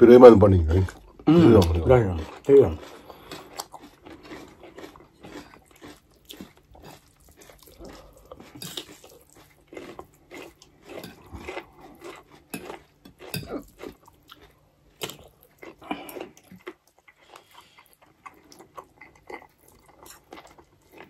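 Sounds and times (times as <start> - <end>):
people chewing noodles: 0.2 - 21.0.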